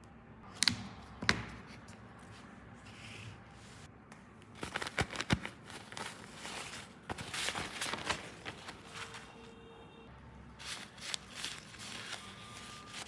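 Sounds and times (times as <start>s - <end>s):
rustling handling noise: 4.6s - 9.6s, 10.6s - 13.0s.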